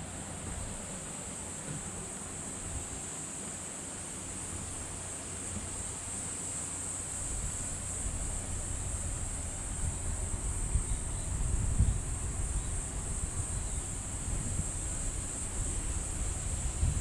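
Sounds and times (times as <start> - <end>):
insects droning: 0.0 - 17.0
wind buffeting microphone: 7.3 - 17.0.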